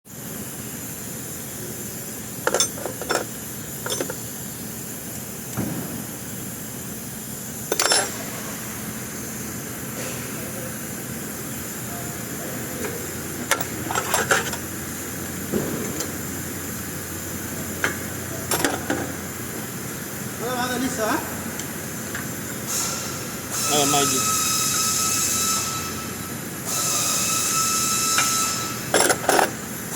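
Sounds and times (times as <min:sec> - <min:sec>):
workshop hum: 0:00.0 - 0:29.9
metal tools clinking: 0:02.4 - 0:04.2, 0:07.7 - 0:08.2, 0:13.4 - 0:14.6, 0:18.4 - 0:19.1, 0:28.9 - 0:29.6.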